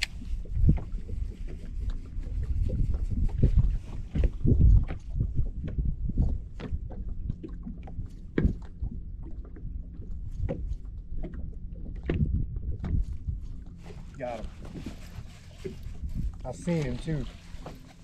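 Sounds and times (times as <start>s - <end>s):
boat engine rumble: 0.0s - 18.0s
knocks against hull: 8.3s - 8.8s.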